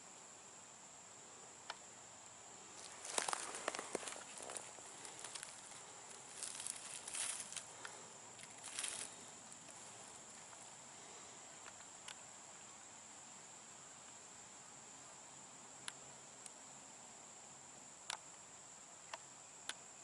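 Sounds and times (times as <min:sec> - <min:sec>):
crickets and insects chirping: 0:00.0 - 0:20.0
rustling: 0:02.7 - 0:10.8.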